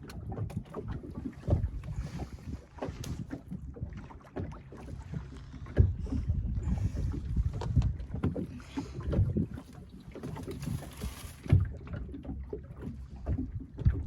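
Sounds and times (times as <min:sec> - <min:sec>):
wind on microphone: 0:00.0 - 0:04.0, 0:05.0 - 0:11.8
water slapping against boat hull: 0:00.0 - 0:14.0.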